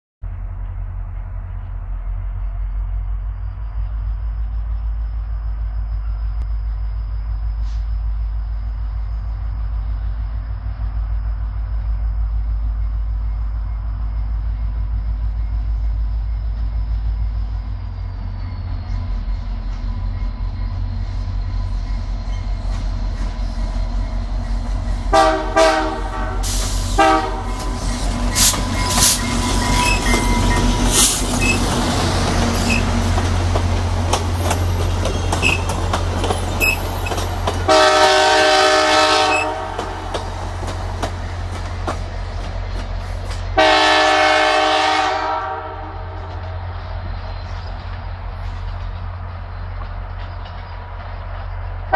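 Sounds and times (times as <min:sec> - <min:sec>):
train rumble: 0:00.2 - 0:51.9
train horn blasts: 0:25.1 - 0:31.2, 0:36.6 - 0:40.3, 0:43.6 - 0:46.3
wheels clattering over rail joints: 0:27.4 - 0:37.8.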